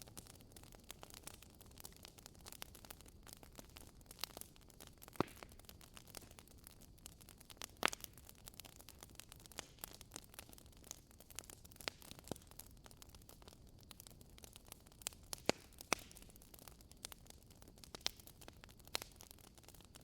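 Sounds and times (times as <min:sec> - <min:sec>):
wood fire crackling: 0:00.0 - 0:20.0
sharp fire pops: 0:01.1 - 0:12.6, 0:15.0 - 0:16.4.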